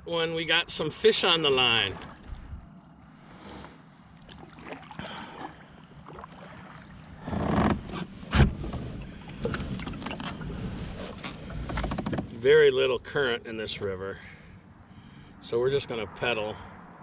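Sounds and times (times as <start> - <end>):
water noise: 0.0 - 14.3
kayak paddle strokes: 1.2 - 2.6, 3.3 - 12.4.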